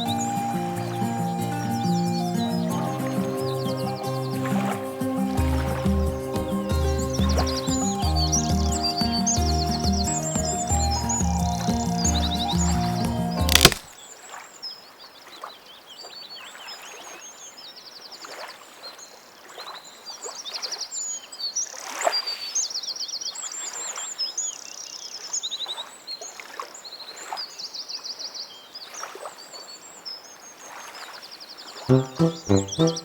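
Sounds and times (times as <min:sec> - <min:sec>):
faint water swishes: 0:00.0 - 0:07.9
small birds chirping and trilling: 0:00.0 - 0:13.4.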